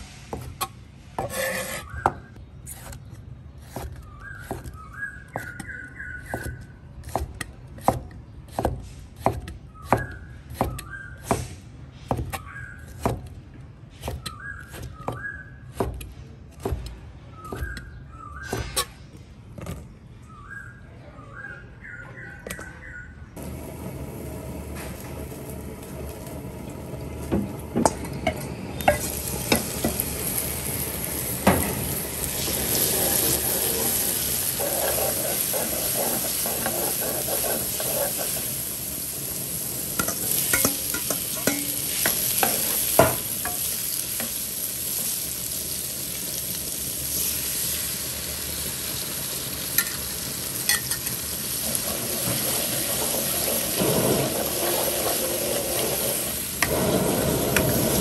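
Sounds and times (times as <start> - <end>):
garlic sizzling in hot oil: 23.4 - 58.0.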